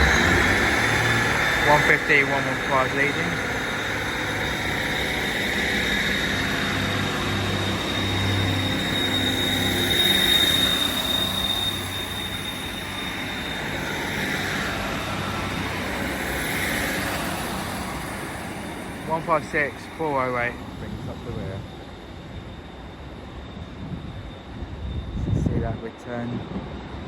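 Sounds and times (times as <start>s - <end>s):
diesel train engines running: 0.0s - 27.0s
high-pitched whine: 0.0s - 27.0s.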